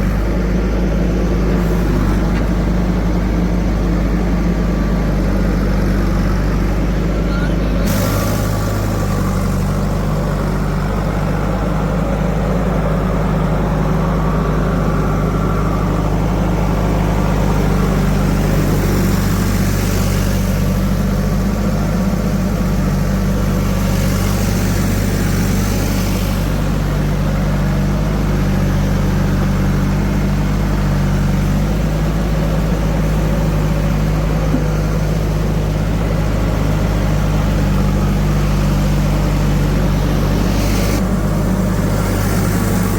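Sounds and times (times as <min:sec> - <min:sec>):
diesel engine running: 0:00.0 - 0:42.9
hiss: 0:07.8 - 0:11.3, 0:17.1 - 0:33.6, 0:36.6 - 0:42.9.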